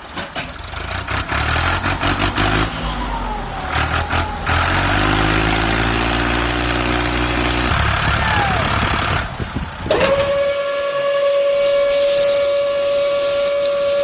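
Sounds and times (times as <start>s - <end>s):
vehicle engine running: 0.0s - 10.3s
falling whine: 1.9s - 14.0s
hiss: 10.3s - 14.0s.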